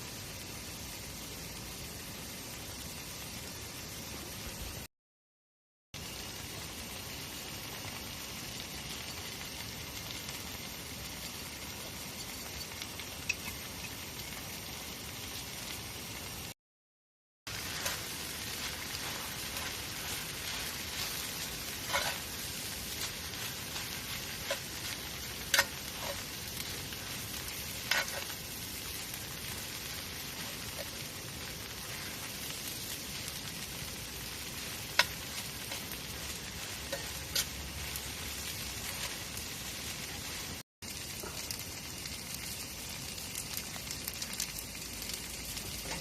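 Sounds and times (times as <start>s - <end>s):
campfire hissing and crackling: 0.0s - 4.9s, 6.0s - 16.6s, 17.5s - 46.0s
burning wood popping: 17.5s - 38.2s.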